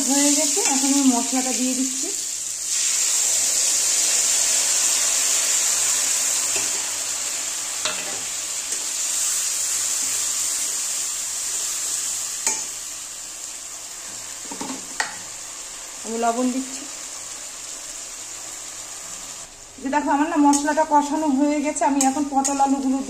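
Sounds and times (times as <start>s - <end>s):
spice paste sizzling in oil: 0.0s - 23.0s
metal spatula stirring: 21.8s - 23.0s.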